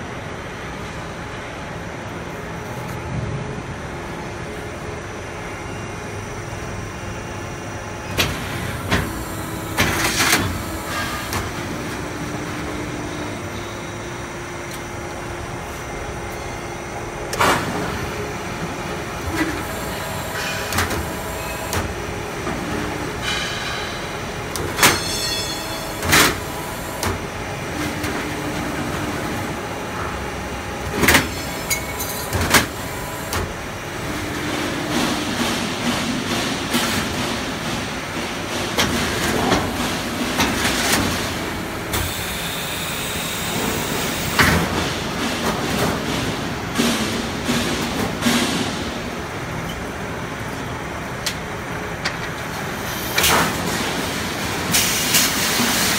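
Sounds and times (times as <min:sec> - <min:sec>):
sharp metal clanks: 0:24.8 - 0:25.8.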